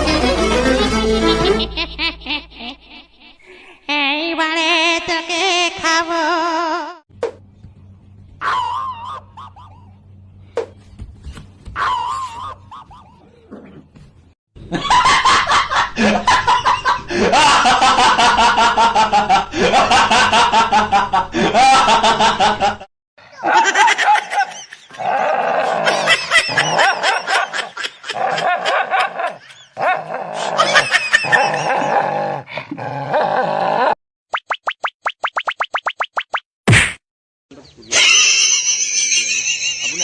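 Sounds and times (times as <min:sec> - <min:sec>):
person laughing hard: 0:01.2 - 0:04.5, 0:14.7 - 0:32.2, 0:37.9 - 0:40.0.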